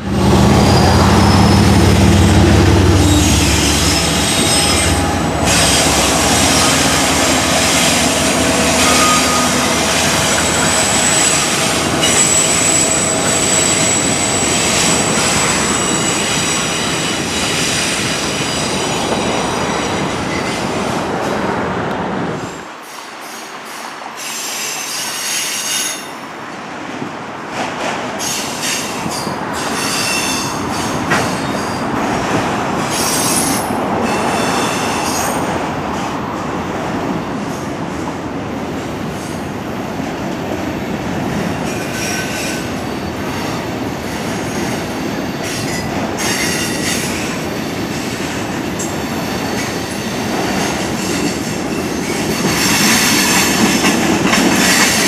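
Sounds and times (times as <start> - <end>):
freight train rumbling past: 0.0 - 55.0
train wheels squealing: 0.5 - 1.9, 2.9 - 20.7, 22.8 - 26.2, 28.2 - 31.8, 32.9 - 35.5, 41.6 - 55.0.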